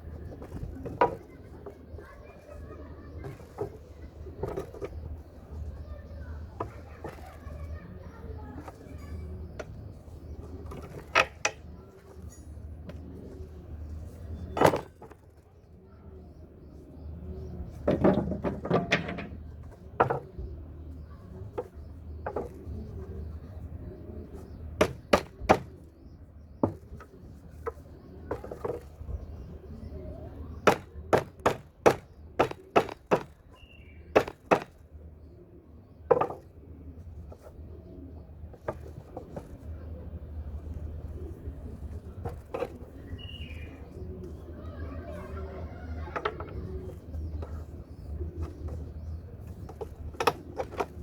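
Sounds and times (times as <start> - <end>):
hammer knocking on wooden boards: 24.8 - 25.7, 30.6 - 33.4, 34.1 - 34.8, 36.1 - 36.4.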